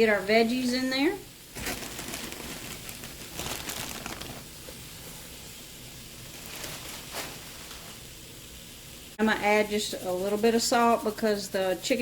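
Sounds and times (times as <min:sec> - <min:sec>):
kale leaves rustling: 0:01.5 - 0:04.5, 0:06.2 - 0:08.0.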